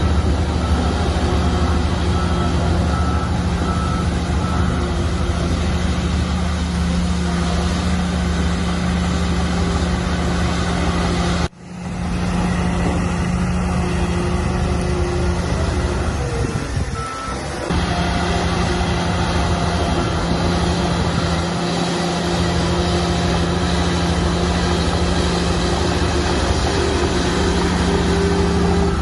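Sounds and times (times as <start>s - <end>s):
reversing alarm beeping: 0.0s - 6.5s, 12.8s - 29.0s
heavy diesel machinery running: 0.0s - 29.0s.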